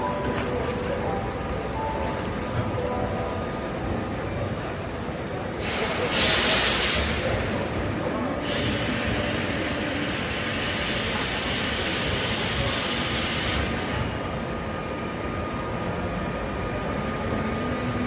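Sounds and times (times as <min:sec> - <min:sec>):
train rolling: 0:00.0 - 0:18.0
air hiss: 0:05.6 - 0:07.4, 0:08.4 - 0:13.7.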